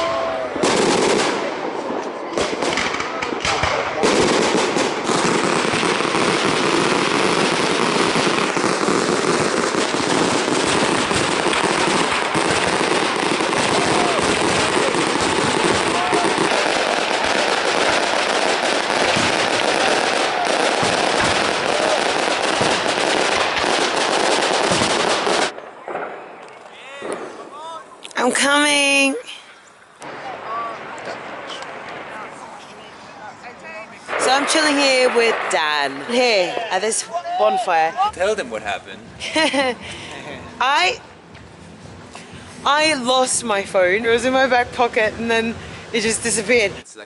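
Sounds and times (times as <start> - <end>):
firecrackers popping: 0.6 - 33.1, 34.0 - 37.0
voices: 13.2 - 22.2, 25.5 - 39.5.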